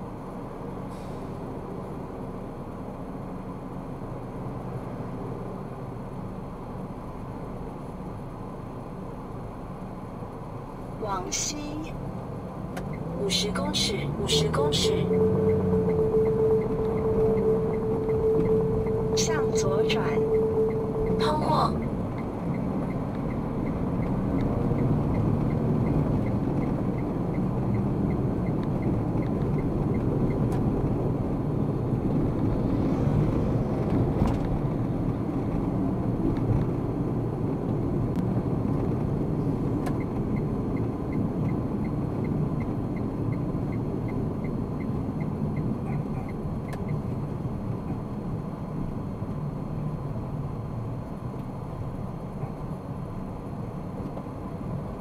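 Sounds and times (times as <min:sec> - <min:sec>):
car road and engine noise: 0:00.0 - 0:55.0
turn signal ticking: 0:12.7 - 0:31.7, 0:37.6 - 0:48.0.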